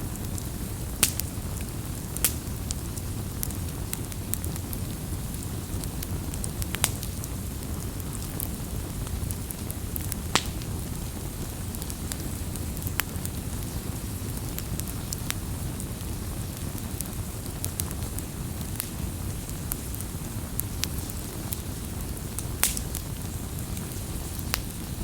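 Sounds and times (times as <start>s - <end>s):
wood fire crackling and popping: 0.0s - 25.0s.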